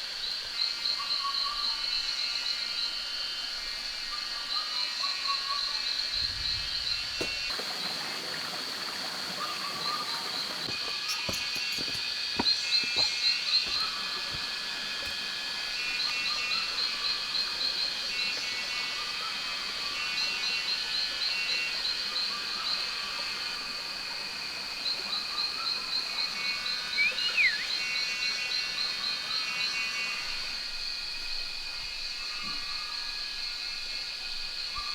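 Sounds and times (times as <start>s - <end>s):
rapid high animal calls: 7.5s - 20.8s
whistled call: 26.9s - 28.1s.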